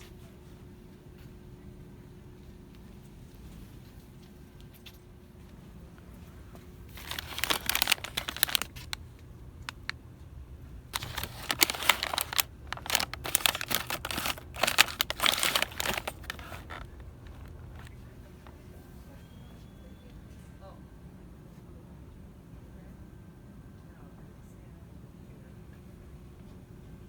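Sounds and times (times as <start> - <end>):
crinkly packaging crackling: 6.8 - 10.0, 10.8 - 18.6.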